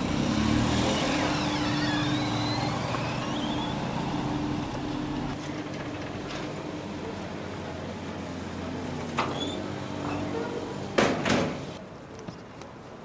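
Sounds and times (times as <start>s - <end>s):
car engine idling: 0.0s - 5.4s
faint high squeals: 0.8s - 5.1s.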